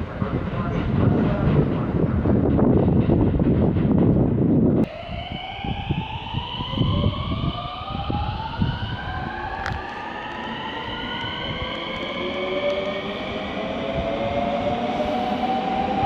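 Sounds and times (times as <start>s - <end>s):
electric train motor whine: 4.9s - 16.0s.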